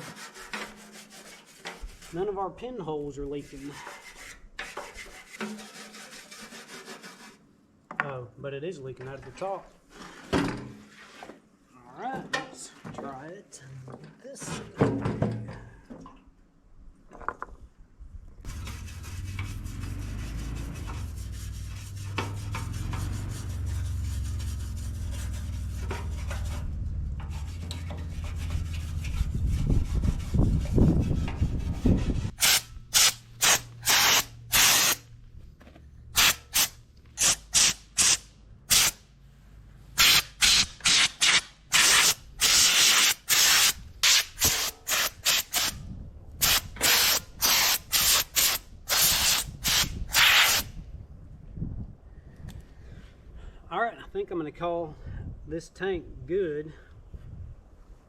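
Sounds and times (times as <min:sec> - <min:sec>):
scrubbing metal tank by hand: 0:00.0 - 0:02.3, 0:03.4 - 0:07.4, 0:18.5 - 0:35.0.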